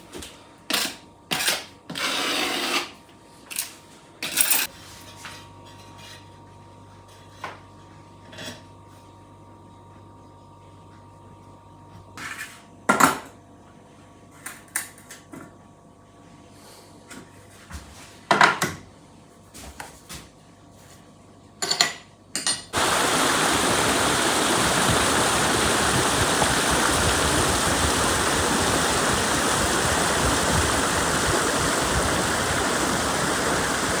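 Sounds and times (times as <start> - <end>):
running water rushing: 22.8 - 34.0.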